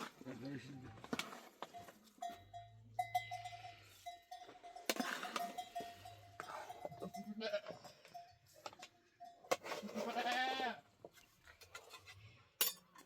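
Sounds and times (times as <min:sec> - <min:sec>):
livestock bells: 0:01.6 - 0:10.1
sheep and goats bleating: 0:05.2 - 0:08.2, 0:09.7 - 0:10.9.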